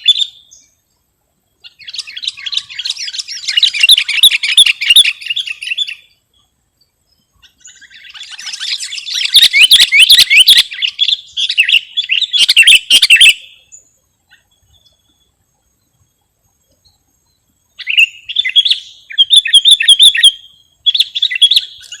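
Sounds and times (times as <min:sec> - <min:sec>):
bulbul singing quick high chirps: 0:07.6 - 0:13.7.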